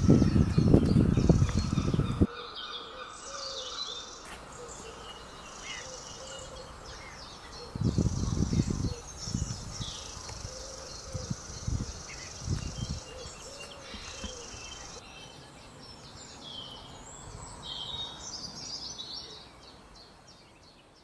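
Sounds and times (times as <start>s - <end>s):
wind or handling on microphone: 0.0s - 2.3s, 7.5s - 15.0s
small birds chirping: 0.0s - 21.0s.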